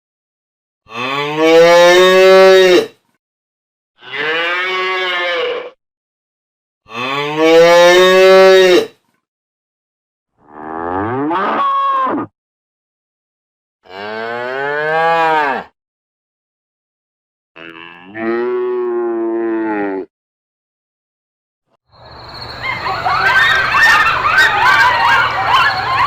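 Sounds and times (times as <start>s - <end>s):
cow mooing: 0.9s - 2.9s, 4.0s - 5.8s, 6.9s - 8.9s, 10.4s - 12.3s, 13.8s - 15.8s, 17.6s - 20.1s.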